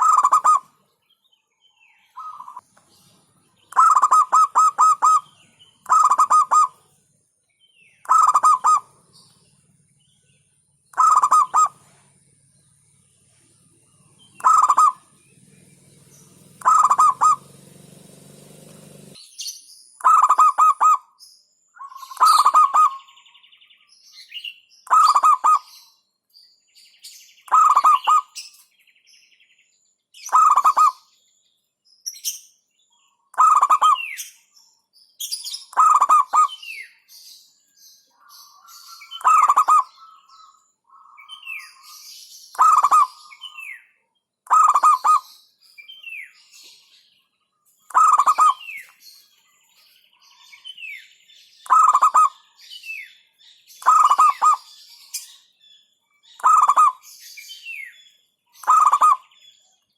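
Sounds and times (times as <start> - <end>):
dove cooing: 0.0 - 0.7, 3.7 - 6.8, 8.0 - 9.3, 10.9 - 12.4, 13.0 - 19.2, 20.0 - 21.0, 22.0 - 23.1, 24.9 - 25.7, 27.5 - 28.4, 30.3 - 31.0, 33.4 - 34.0, 35.8 - 36.6, 39.1 - 41.3, 42.6 - 43.6, 44.5 - 45.3, 47.9 - 48.8, 51.7 - 52.4, 53.8 - 54.7, 56.4 - 57.0, 58.6 - 59.2
faint high bird chirps: 0.0 - 59.9.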